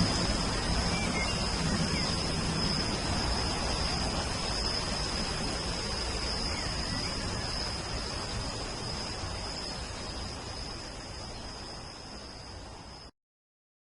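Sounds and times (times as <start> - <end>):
high-pitched insect trill: 0.0 - 13.1
rain hiss: 0.0 - 13.1.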